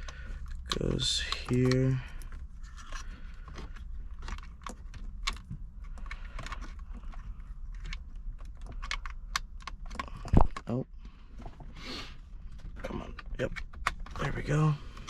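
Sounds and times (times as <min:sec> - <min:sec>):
plastic connectors clicking: 0:00.0 - 0:07.2.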